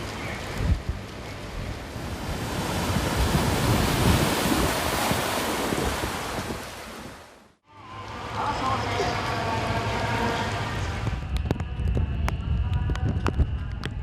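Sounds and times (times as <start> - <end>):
wind buffeting microphone: 0.0 - 7.3, 10.9 - 14.0
storm wind: 0.0 - 7.6, 8.6 - 14.0
heavy surf: 0.0 - 13.9.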